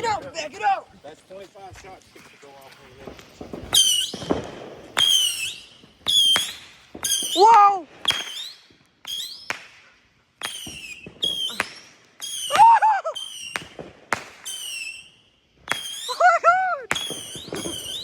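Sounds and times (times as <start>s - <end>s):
firework shots firing: 3.0s - 16.2s, 16.9s - 18.0s
falling firework whistles: 3.3s - 16.2s, 16.9s - 18.0s.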